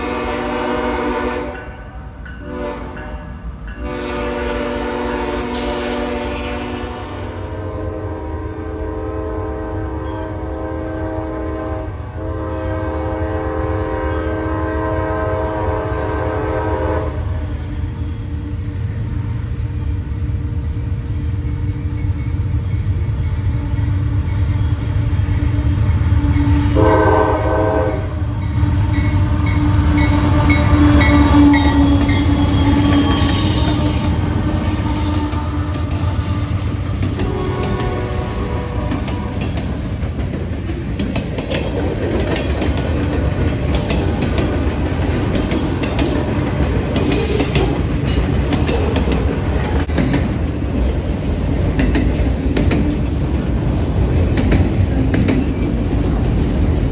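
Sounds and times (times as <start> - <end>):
train horn: 0.0 - 18.5, 23.7 - 39.8
train rumbling past: 0.0 - 56.9.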